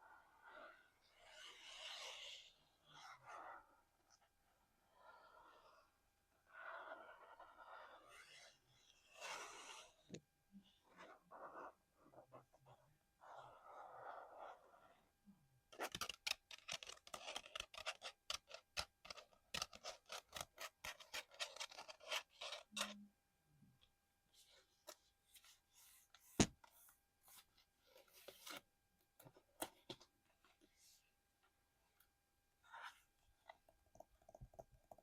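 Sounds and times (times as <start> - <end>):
sharp clicks and scratches: 15.7 - 23.0.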